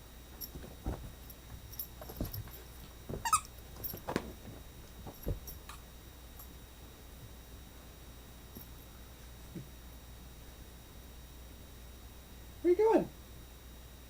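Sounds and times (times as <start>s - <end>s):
puppy bumps and scuffles: 0.3s - 5.8s.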